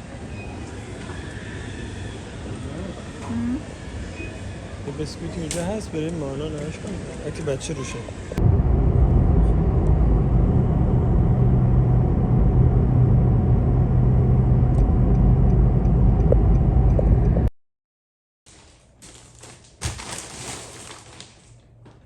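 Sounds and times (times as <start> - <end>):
vehicle engine hum: 8.0 - 17.5.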